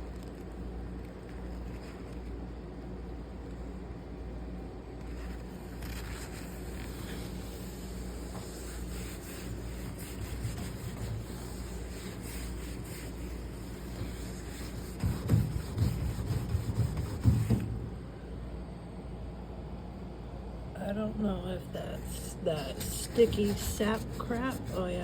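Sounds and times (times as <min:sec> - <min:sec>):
rubbing and wiping surface: 0:05.0 - 0:17.7, 0:22.5 - 0:25.0.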